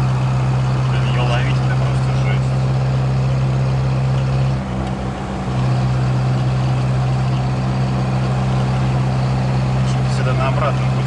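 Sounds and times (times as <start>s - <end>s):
car engine drone: 0.0s - 11.0s
road noise inside car: 0.0s - 11.0s.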